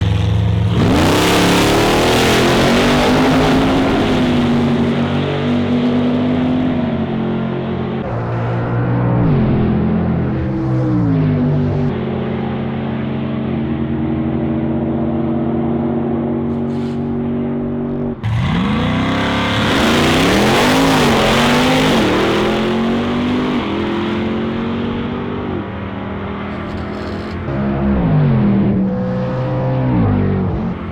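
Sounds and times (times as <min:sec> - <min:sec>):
drag car engine accelerating: 0:00.0 - 0:30.9.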